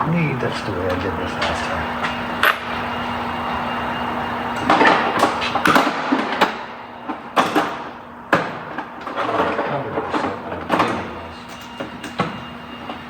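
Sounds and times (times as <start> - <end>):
steady hum: 0.0 - 7.1.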